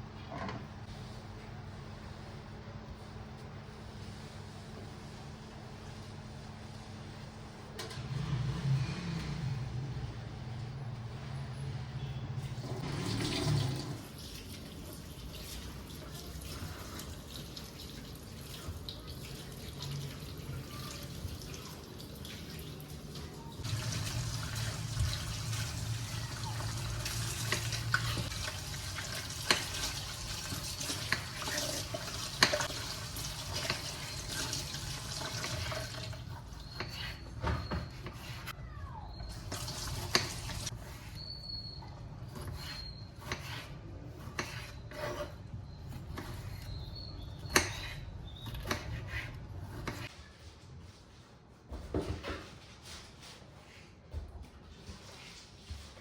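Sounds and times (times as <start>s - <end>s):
tap water running into sink: 23.7s - 36.2s, 39.3s - 40.7s.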